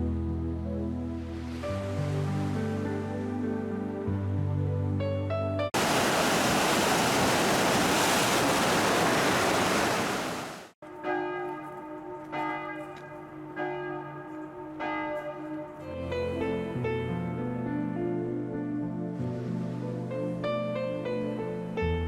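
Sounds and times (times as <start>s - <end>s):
loud rush of water: 5.8s - 10.8s.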